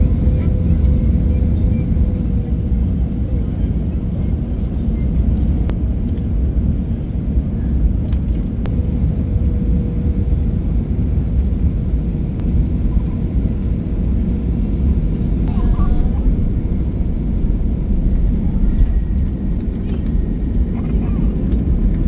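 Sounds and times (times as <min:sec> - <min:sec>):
airliner cabin rumble: 0:00.0 - 0:22.0
faint hum: 0:08.1 - 0:22.0.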